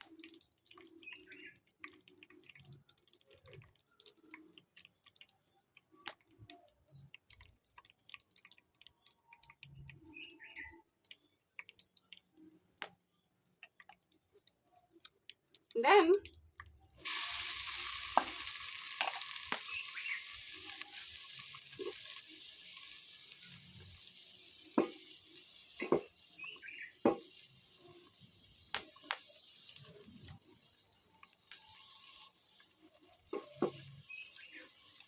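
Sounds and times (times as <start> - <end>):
food sizzling in hot oil: 17.0 - 35.0.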